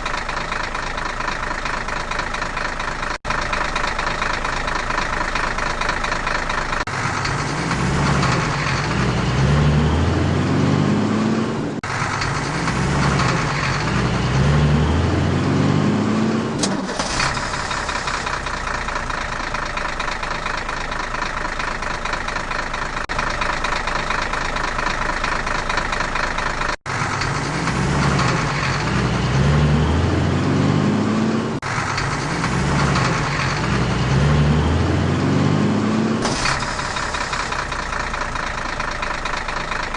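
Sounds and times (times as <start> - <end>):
vehicle engine revving: 6.8 - 19.7, 26.8 - 39.9.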